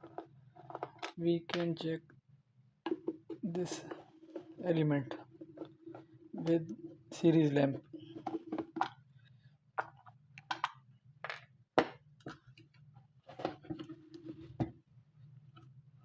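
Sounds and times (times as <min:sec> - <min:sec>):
hard objects clicking and knocking: 0:00.0 - 0:01.9, 0:02.9 - 0:06.9, 0:07.8 - 0:09.0, 0:09.8 - 0:12.7.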